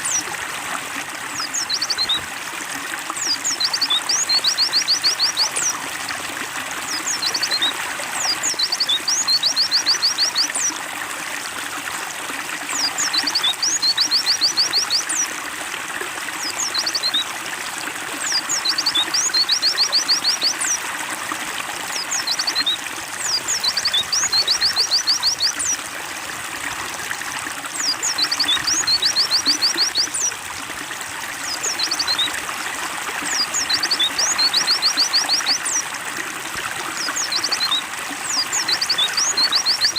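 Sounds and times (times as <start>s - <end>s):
water trickling: 0.0s - 39.9s
songbird chirping: 21.9s - 25.8s, 27.8s - 30.2s.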